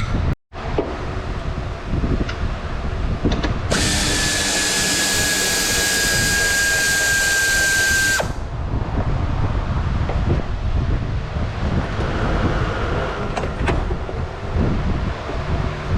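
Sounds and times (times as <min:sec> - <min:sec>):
power drill whining: 0:03.7 - 0:08.4.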